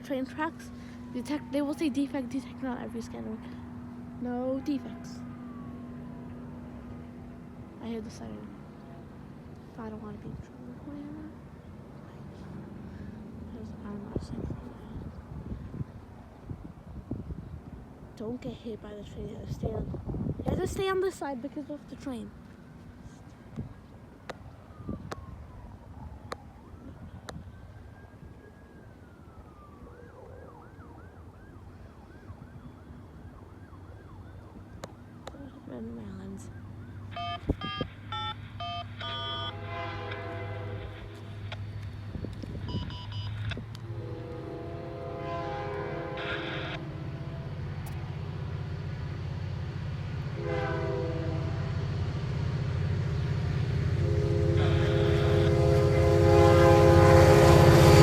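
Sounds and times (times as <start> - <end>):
distant emergency siren: 0.0 - 16.1, 22.6 - 58.0
diesel locomotive engine rumbling: 0.0 - 28.4, 34.3 - 58.0
locomotive horn blast: 39.0 - 41.4, 43.8 - 47.8, 50.3 - 52.1, 53.7 - 58.0.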